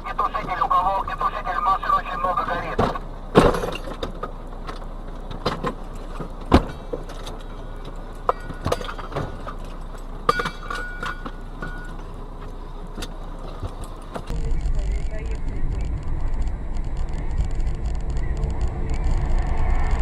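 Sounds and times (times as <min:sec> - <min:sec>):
vehicle cab running noise: 0:00.0 - 0:19.5.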